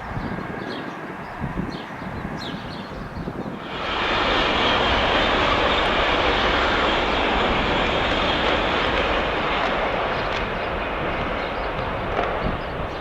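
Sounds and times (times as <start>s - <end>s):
train passing: 3.5s - 13.0s.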